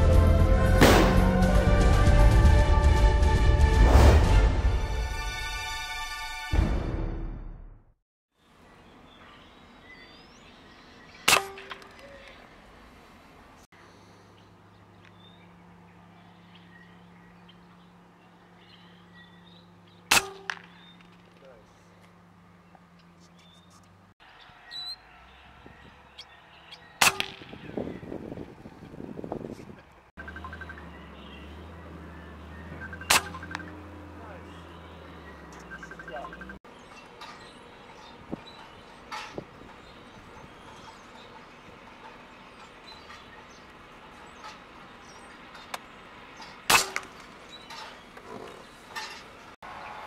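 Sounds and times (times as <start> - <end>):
air rifle shot crack: 0.8 - 1.2
air rifle shot: 0.8 - 1.3, 20.1 - 20.7, 27.0 - 27.6
small birds chirping: 8.4 - 49.6.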